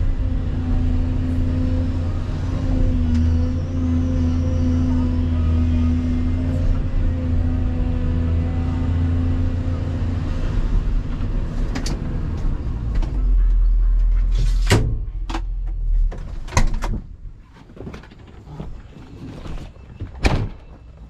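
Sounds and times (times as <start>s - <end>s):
excavator diesel engine running: 0.0s - 17.4s.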